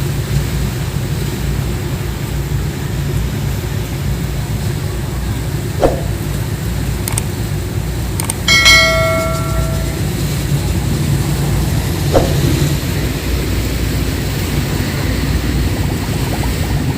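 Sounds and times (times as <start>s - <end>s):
ringing metallic strike: 8.5s - 10.2s, 12.2s - 12.5s.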